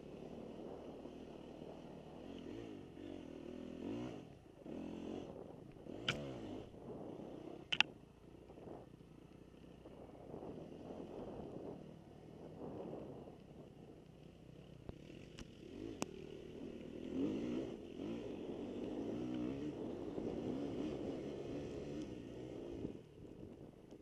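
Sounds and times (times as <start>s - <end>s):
motorcycle engine revving: 0.0s - 7.9s, 9.6s - 24.0s
sharp clicks: 6.0s - 6.3s, 7.7s - 7.9s.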